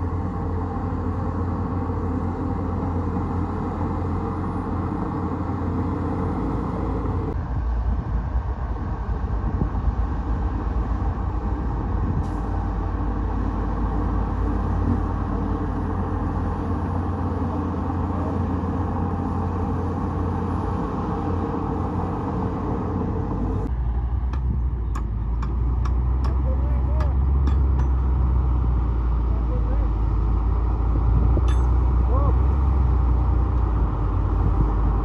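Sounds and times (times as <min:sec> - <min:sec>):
bulldozer diesel engine rumbling: 0:00.0 - 0:35.0.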